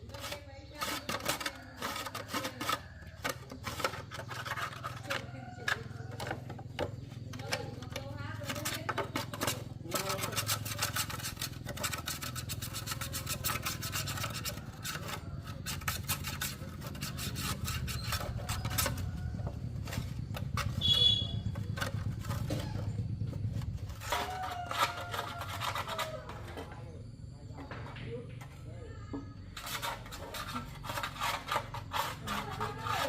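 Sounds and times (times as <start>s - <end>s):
scraping and scrubbing strokes: 0.0s - 33.0s
short high squeak: 20.8s - 21.4s.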